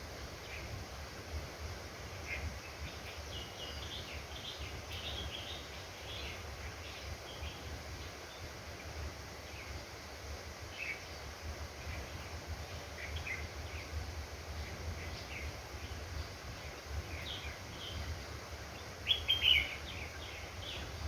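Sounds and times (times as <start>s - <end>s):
bird chirping: 14.6s - 18.1s, 18.7s - 21.0s.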